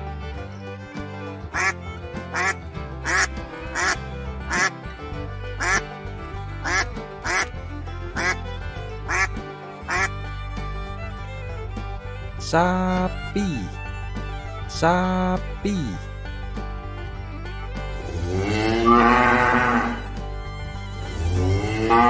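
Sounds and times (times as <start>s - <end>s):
background music: 0.0s - 22.0s
duck quacking: 1.6s - 4.8s, 5.6s - 5.8s, 6.6s - 7.5s, 8.2s - 8.4s, 9.1s - 10.1s, 18.5s - 20.1s.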